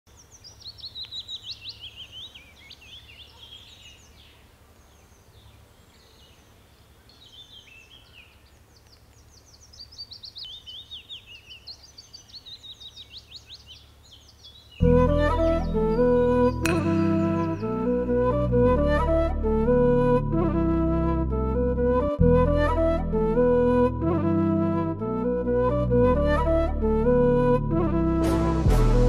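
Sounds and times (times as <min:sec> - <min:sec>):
songbirds singing: 0:00.1 - 0:18.0
music with flute: 0:14.8 - 0:29.0.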